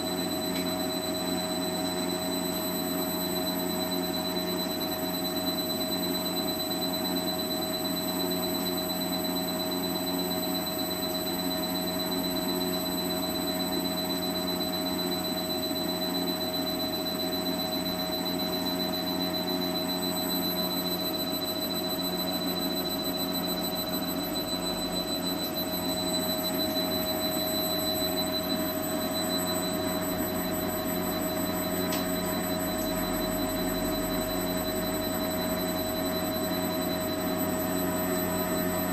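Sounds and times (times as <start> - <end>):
high-pitched whine: 9.9 - 38.9.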